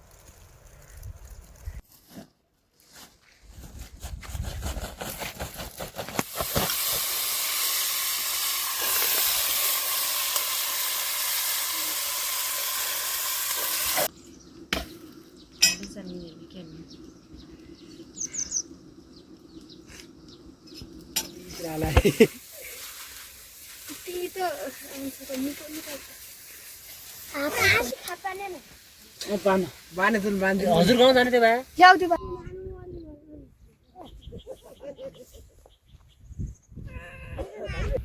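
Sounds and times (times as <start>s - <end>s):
food sizzling in hot oil: 6.2s - 14.1s, 20.7s - 32.0s.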